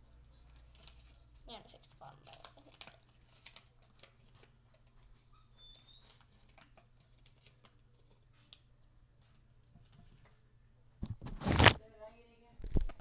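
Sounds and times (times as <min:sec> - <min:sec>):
paper rustling and clicking: 0:00.4 - 0:01.3, 0:02.0 - 0:05.1, 0:05.9 - 0:10.4, 0:11.0 - 0:11.8, 0:12.6 - 0:13.0.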